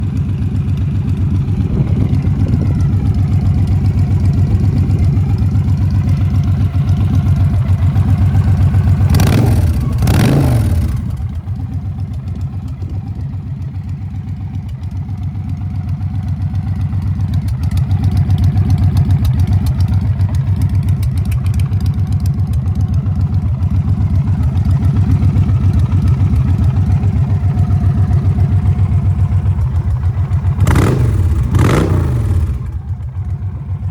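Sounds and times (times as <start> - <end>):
motorcycle engine idling: 0.0 - 33.9
motorcycle engine revving: 0.0 - 33.9.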